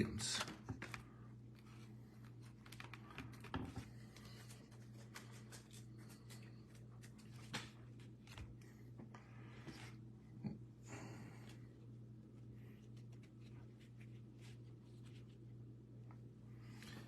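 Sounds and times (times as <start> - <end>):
trading cards clicking and rustling: 0.0 - 8.6.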